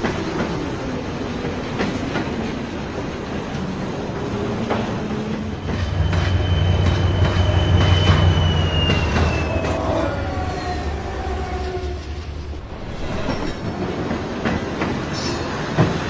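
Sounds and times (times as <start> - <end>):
train rumbling past: 0.0 - 16.0
thin squeal sliding down: 5.7 - 13.7.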